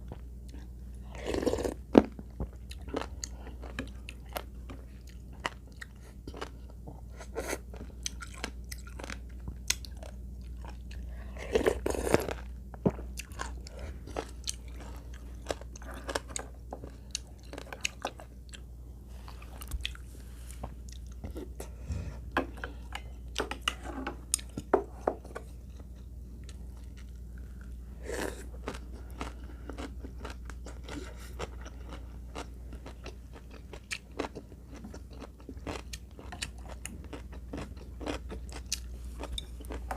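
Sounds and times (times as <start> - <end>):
crunchy chewing: 25.5 - 39.9.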